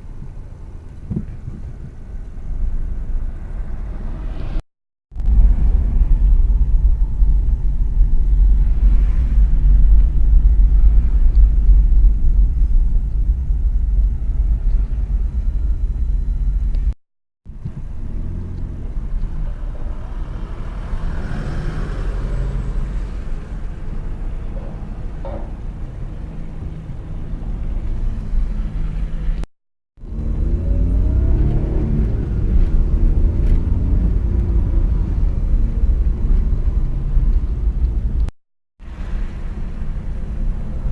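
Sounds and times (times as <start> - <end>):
car road rumble: 0.0 - 40.9.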